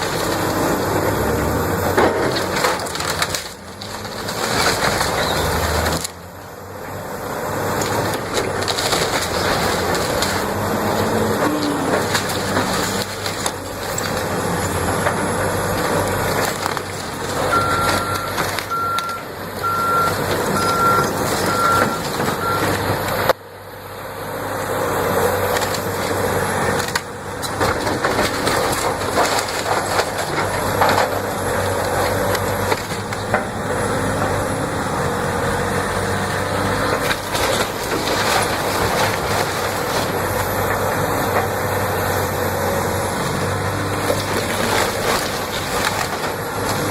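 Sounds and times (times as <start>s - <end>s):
heavy truck engine: 0.0s - 46.9s
machinery noise: 0.0s - 46.9s
reversing alarm beeping: 17.5s - 22.8s.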